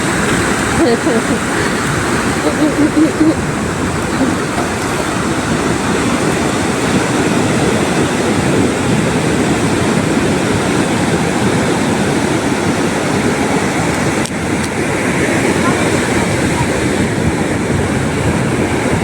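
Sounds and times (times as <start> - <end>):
ocean waves breaking: 0.0 - 19.0.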